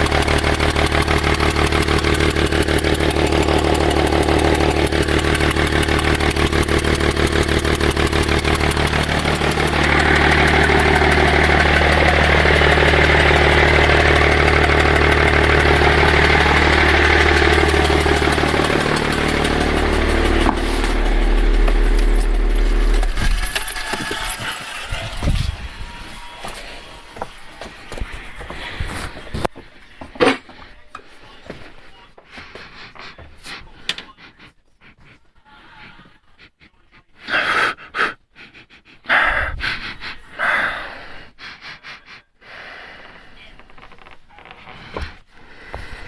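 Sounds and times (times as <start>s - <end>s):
engine intake hiss: 0.0s - 27.0s
diesel engine pulsing: 0.0s - 30.0s.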